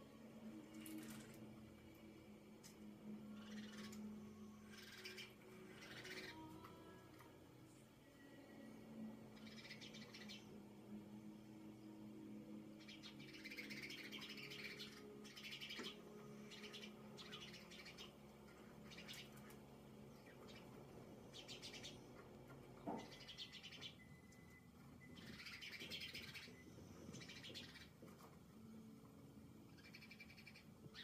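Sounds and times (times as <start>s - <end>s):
low steady hum: 0.0s - 31.0s
small bird chirping: 3.3s - 7.1s, 9.4s - 10.6s, 12.8s - 22.2s, 22.8s - 28.0s, 29.7s - 31.0s.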